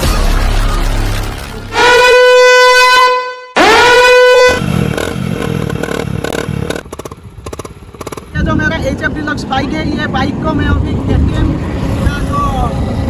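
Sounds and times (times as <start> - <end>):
horn blasts: 1.7 - 5.6
motorcycle engine running: 3.6 - 13.0.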